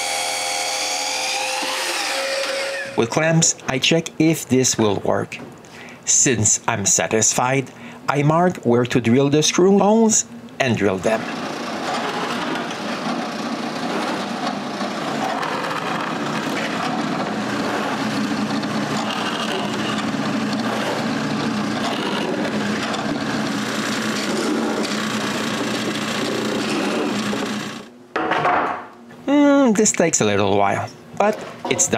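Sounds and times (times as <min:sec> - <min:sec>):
electric drill boring through wood: 0:00.0 - 0:03.0, 0:11.3 - 0:27.9.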